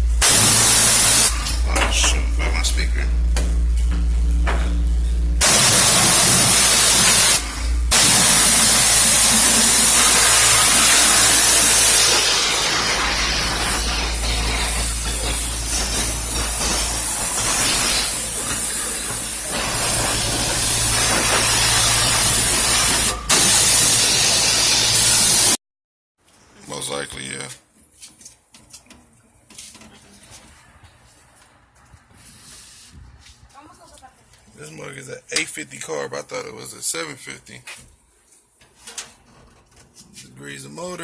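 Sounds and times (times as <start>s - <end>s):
steady low hum: 0.0s - 23.4s
hissing water spray: 0.2s - 1.4s, 5.4s - 25.6s.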